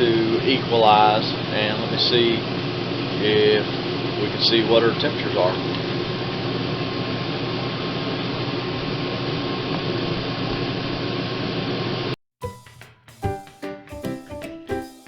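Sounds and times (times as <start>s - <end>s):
air conditioner whirring: 0.0s - 12.1s
music: 12.4s - 15.0s.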